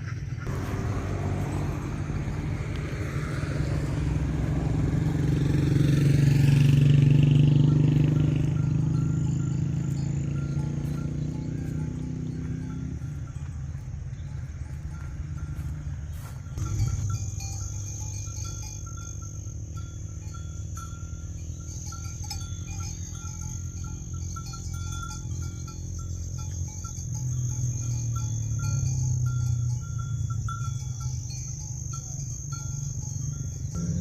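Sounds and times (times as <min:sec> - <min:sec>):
crickets chirping: 0:00.0 - 0:34.0
low rumble: 0:00.1 - 0:05.8.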